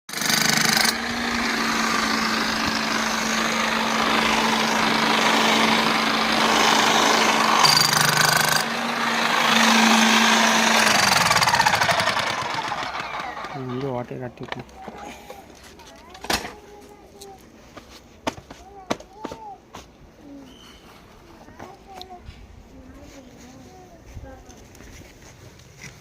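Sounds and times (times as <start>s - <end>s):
plumbing machine motor rattling: 0.1s - 13.9s.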